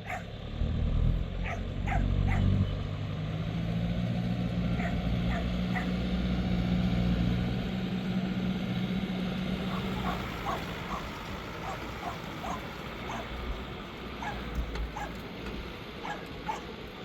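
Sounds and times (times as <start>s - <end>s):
dog yipping: 0.0s - 0.3s, 1.4s - 2.6s, 4.8s - 6.0s, 9.7s - 13.4s, 14.2s - 15.2s, 16.0s - 16.7s
tractor diesel engine running: 0.0s - 17.0s.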